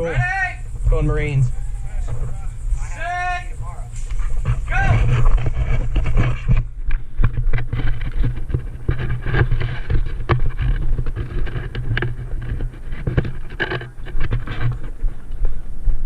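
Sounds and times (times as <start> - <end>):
camera rumble and rustling: 0.0 - 16.0
sharp clicks and knocks: 4.0 - 15.4.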